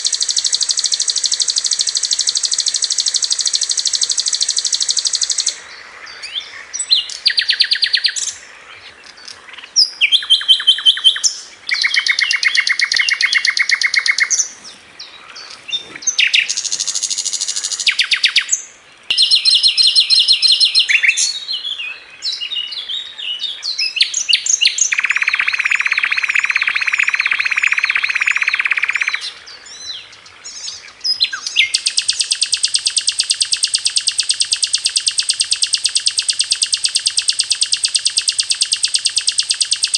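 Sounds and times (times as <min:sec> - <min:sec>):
bird singing fast rattling trills: 0:00.0 - 0:08.4, 0:09.2 - 0:14.6, 0:15.3 - 0:22.7, 0:23.6 - 0:39.9.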